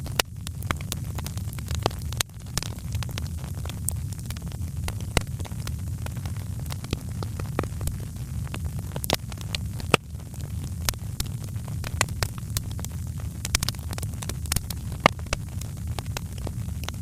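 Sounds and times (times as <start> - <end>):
low rumble of flames: 0.0 - 17.0
wood fire crackling: 0.0 - 17.0.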